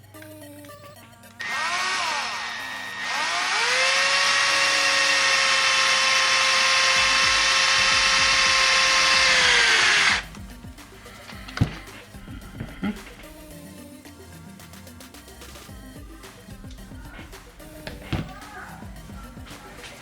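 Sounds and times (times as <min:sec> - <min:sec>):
power drill whining: 0:01.4 - 0:13.6.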